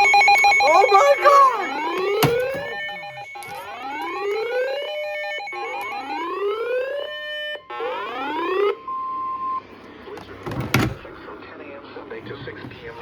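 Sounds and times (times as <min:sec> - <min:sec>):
rising siren wails: 0:00.0 - 0:09.7.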